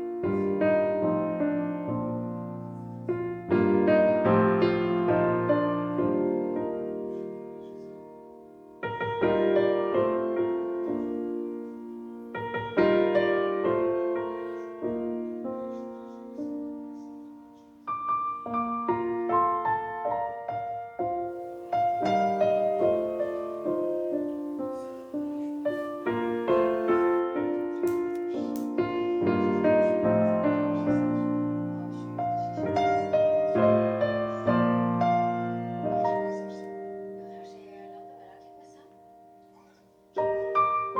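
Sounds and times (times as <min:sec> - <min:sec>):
soft piano music: 0:00.0 - 0:40.9.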